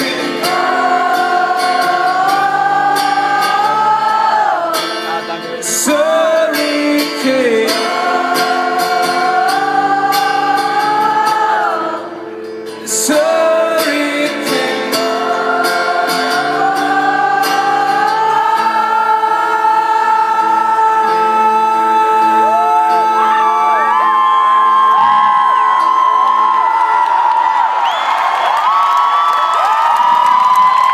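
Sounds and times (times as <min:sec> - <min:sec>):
wordless singing in held notes: 0:00.0 - 0:12.2, 0:12.8 - 0:24.0
live rock band music: 0:00.0 - 0:24.2.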